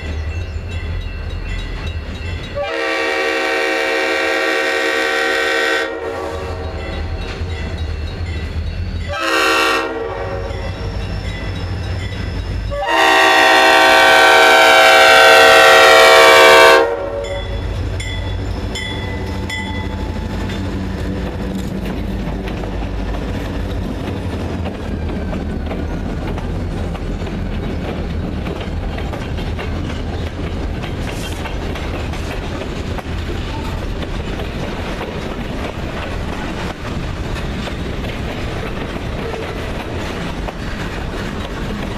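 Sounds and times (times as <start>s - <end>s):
locomotive rumble: 0.0s - 41.9s
train cars clacking on rails: 0.0s - 41.9s
train horn blasts: 2.6s - 7.1s, 9.1s - 10.8s, 12.7s - 17.7s.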